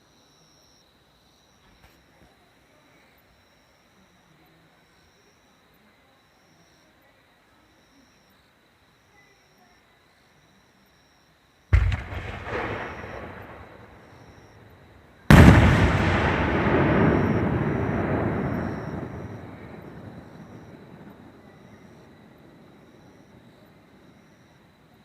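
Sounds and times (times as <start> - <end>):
fireworks bursting: 11.7 - 22.1.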